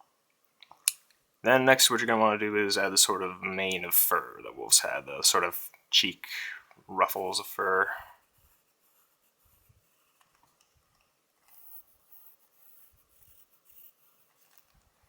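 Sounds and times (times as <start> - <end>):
pencil scratching on paper: 8.2 - 10.4, 11.4 - 14.8.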